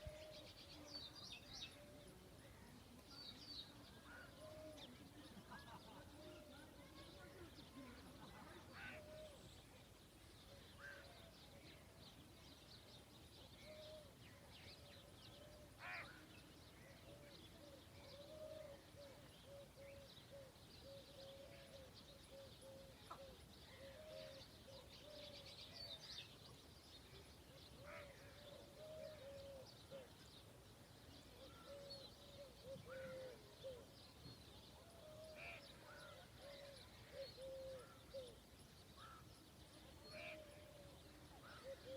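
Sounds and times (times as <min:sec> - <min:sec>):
bird calls and chirps: 0:00.0 - 0:41.9.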